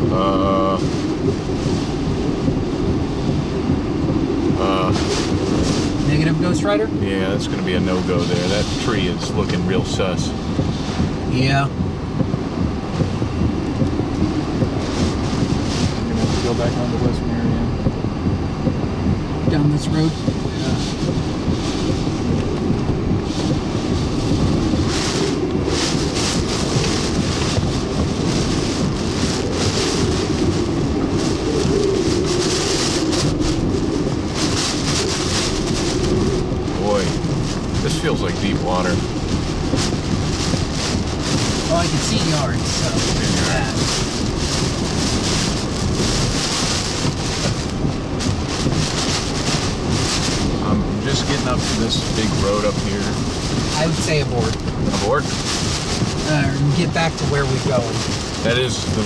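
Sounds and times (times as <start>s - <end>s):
heavy rain on vehicle: 0.0s - 59.0s
hissing wind and spray: 0.0s - 59.0s
low rumble: 0.0s - 59.0s.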